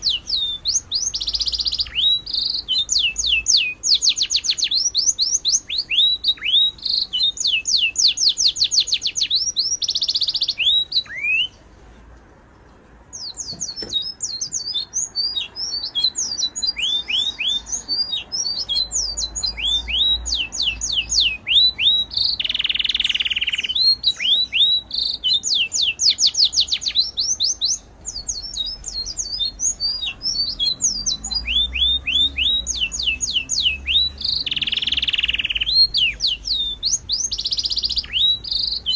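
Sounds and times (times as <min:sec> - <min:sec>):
birds chirping: 0:00.0 - 0:38.9
harsh bird squawks: 0:13.2 - 0:38.9.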